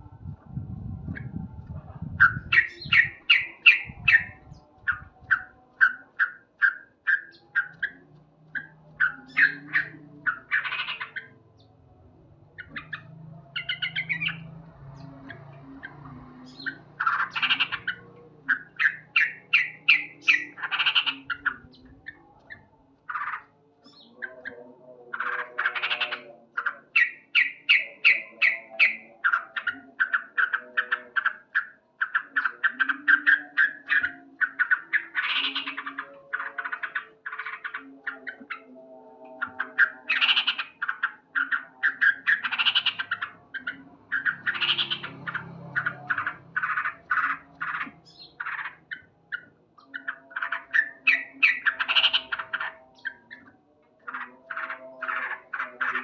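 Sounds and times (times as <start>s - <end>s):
bird chattering calls: 2.0s - 11.4s, 15.8s - 22.2s, 39.4s - 56.0s.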